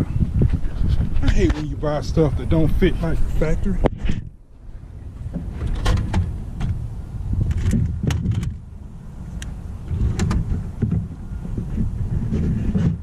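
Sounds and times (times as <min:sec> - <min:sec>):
low handling rumble: 0:00.0 - 0:13.0.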